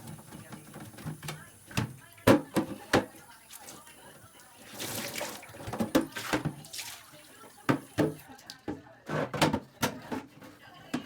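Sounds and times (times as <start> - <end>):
water running: 0.0 - 8.3.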